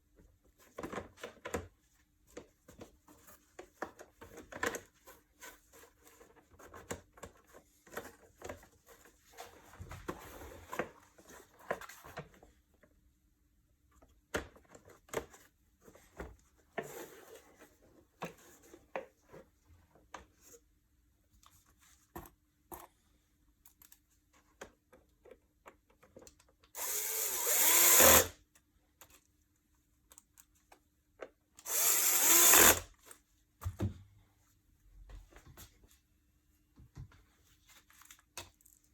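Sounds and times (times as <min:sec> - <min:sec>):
cordless power screwdriver: 0:26.8 - 0:28.4, 0:31.6 - 0:32.9.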